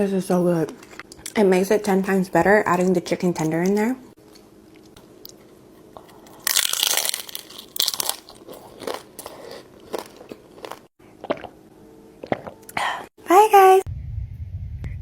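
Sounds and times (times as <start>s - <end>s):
crunching chews: 4.8s - 11.5s
crunchy bite into taco shell: 6.0s - 11.5s.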